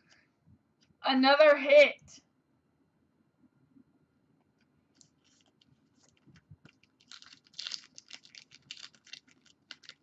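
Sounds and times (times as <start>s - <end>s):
wrapper crinkling and tearing: 5.0s - 10.0s.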